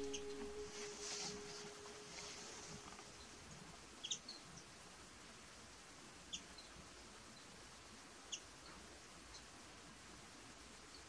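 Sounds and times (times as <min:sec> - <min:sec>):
faint outdoor hiss: 0:00.0 - 0:11.0
small bird chirping: 0:04.0 - 0:04.7.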